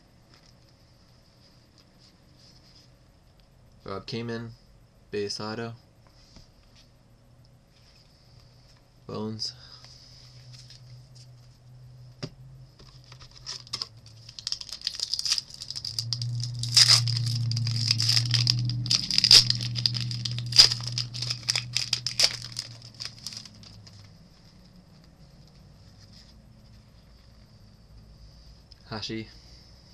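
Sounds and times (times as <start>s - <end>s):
cards being handled: 12.8s - 24.1s
card pack wrapper crinkling and tearing: 12.9s - 24.2s.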